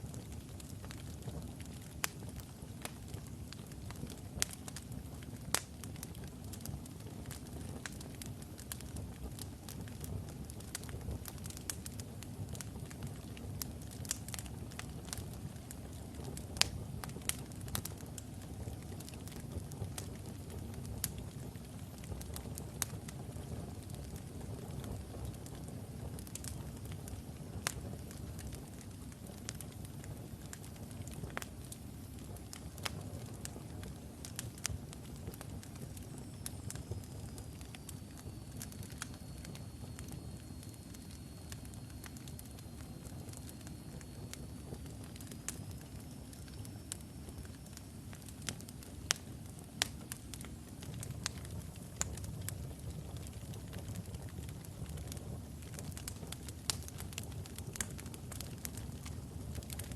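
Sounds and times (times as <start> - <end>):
fire crackling and popping: 0.0 - 59.9
flames rumbling: 0.0 - 59.9.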